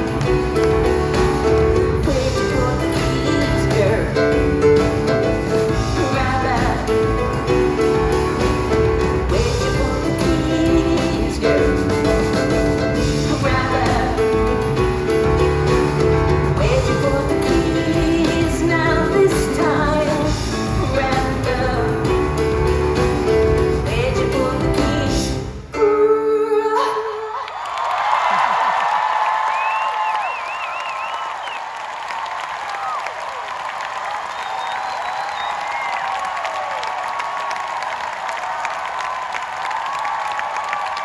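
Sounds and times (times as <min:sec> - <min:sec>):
woman singing: 0:00.0 - 0:15.6, 0:16.2 - 0:27.5
rock band with piano: 0:00.0 - 0:26.4, 0:28.1 - 0:41.0.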